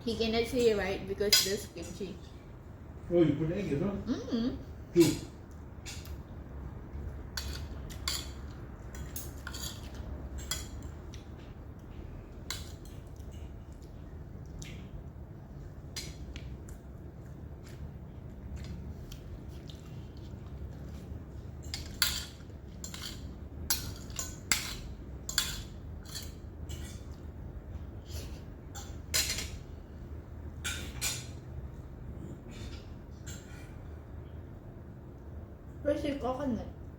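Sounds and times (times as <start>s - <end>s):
low steady hum: 0.0s - 36.9s
cutlery clinking on plates: 7.4s - 11.0s, 21.6s - 27.2s.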